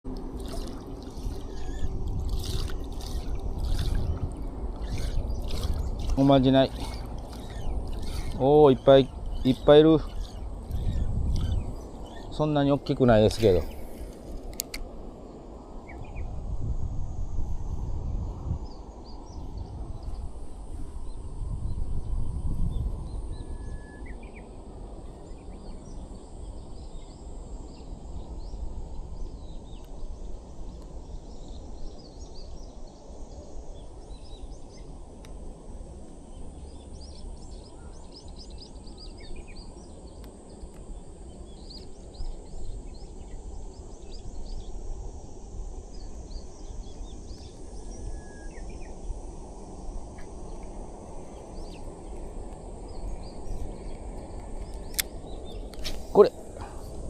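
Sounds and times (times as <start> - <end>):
steady low rumbling: 0.0 - 23.6.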